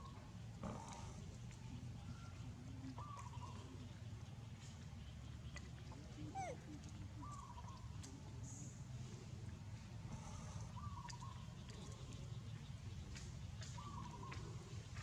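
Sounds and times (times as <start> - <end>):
young monkey squeaking: 6.3 - 6.6.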